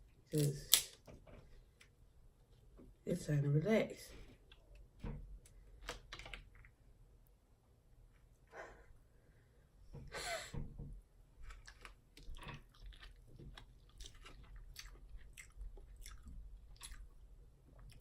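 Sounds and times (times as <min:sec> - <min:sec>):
wet chewing and lip smacks: 0:11.4 - 0:18.0.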